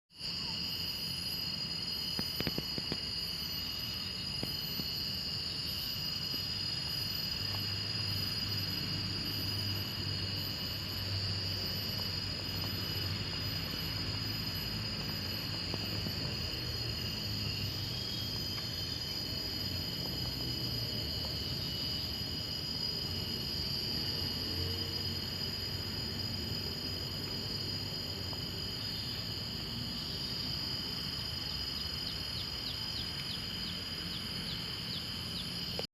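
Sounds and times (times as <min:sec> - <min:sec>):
insects trilling: 0:00.1 - 0:35.9.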